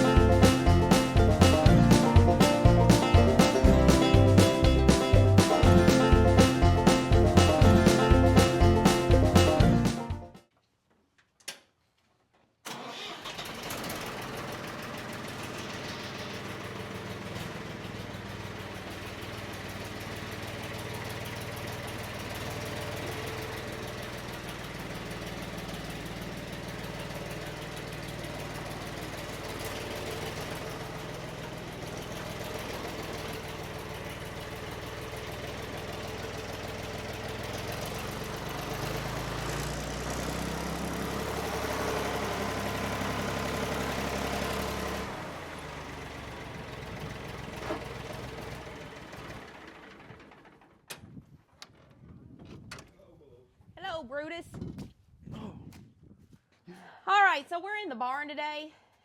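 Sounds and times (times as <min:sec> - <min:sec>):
engine running steadily: 0:00.0 - 0:10.2, 0:13.4 - 0:51.0.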